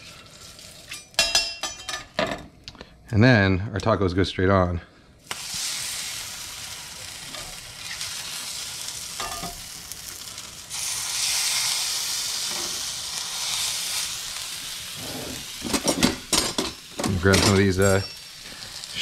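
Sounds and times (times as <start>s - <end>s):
tacos sizzling in oil: 0.0s - 1.2s, 5.2s - 19.0s.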